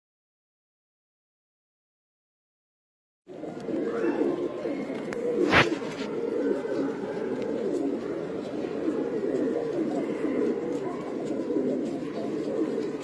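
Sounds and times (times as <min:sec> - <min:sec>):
pigeons cooing: 0:03.3 - 0:13.0.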